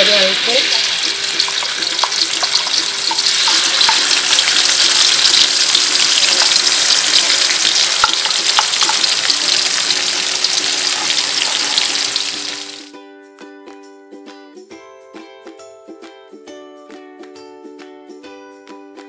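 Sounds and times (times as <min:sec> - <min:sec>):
spice paste sizzling in oil: 0:00.0 - 0:12.9.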